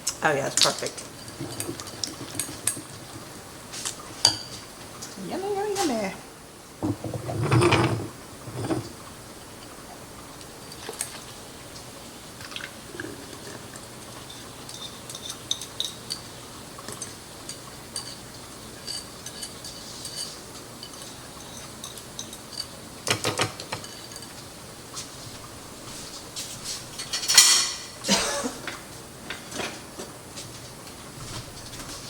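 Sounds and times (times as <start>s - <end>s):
utensil clinking against dish: 0.5s - 4.6s, 12.4s - 24.5s, 27.0s - 29.8s
dishes clattering: 0.6s - 4.7s, 6.8s - 9.0s, 18.8s - 24.5s, 26.9s - 30.1s.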